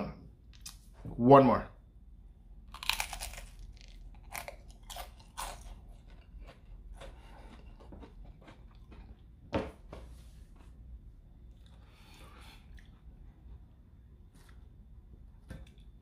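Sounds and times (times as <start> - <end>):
crunching and chewing crispy crust: 2.6 - 9.3.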